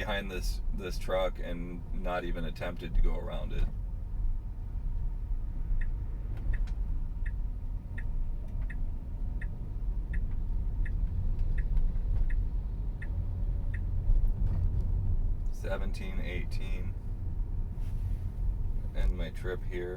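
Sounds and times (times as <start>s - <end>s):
road and cabin rumble: 0.0s - 19.9s
turn signal ticking: 5.0s - 15.6s.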